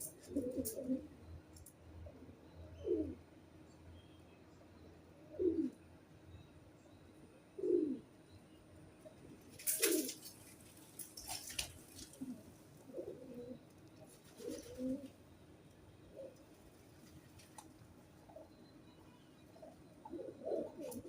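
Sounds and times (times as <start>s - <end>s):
pigeon cooing: 0.0s - 1.2s, 2.8s - 3.2s, 5.3s - 5.8s, 7.6s - 8.1s, 9.6s - 10.3s, 11.2s - 15.2s, 16.1s - 16.4s, 19.5s - 21.0s.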